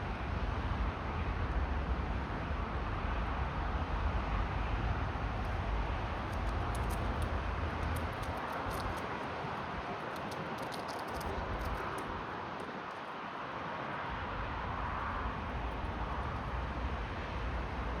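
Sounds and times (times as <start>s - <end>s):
squirrel gnawing peanut shell: 5.4s - 13.3s.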